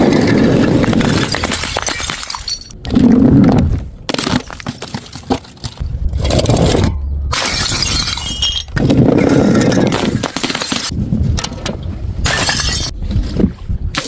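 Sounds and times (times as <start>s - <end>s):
glass bottles shattering: 0.9s - 2.8s, 7.3s - 10.9s, 12.3s - 12.9s.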